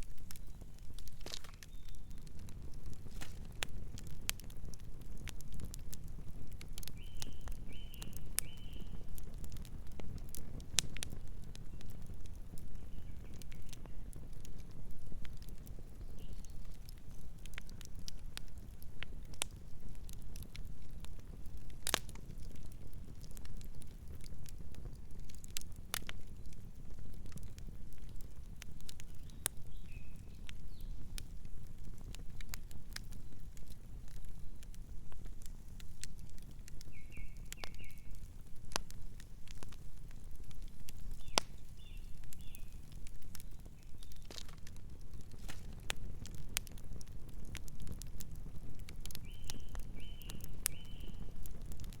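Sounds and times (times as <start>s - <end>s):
campfire crackling: 0.0s - 52.0s
bird chirping softly: 0.2s - 2.5s, 6.8s - 9.1s, 11.6s - 14.2s, 16.0s - 17.9s, 29.0s - 31.1s, 36.8s - 38.3s, 41.0s - 44.6s, 49.1s - 51.4s.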